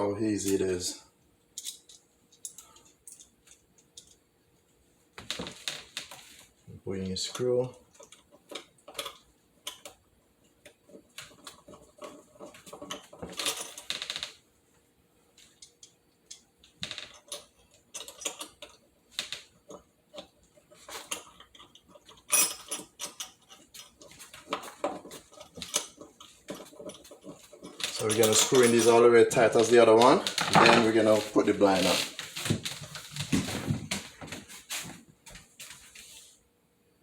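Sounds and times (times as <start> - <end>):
metal screws clicking and rattling: 1.6 - 4.2, 17.0 - 20.3, 20.9 - 29.0.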